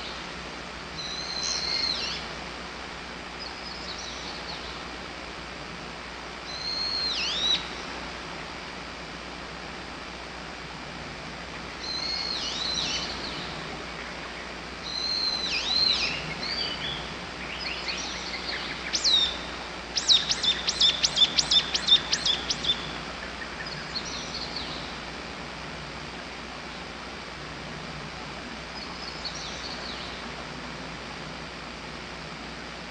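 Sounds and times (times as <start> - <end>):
songbirds singing: 0.0 - 5.3, 6.3 - 8.0, 11.4 - 25.3, 28.6 - 32.8.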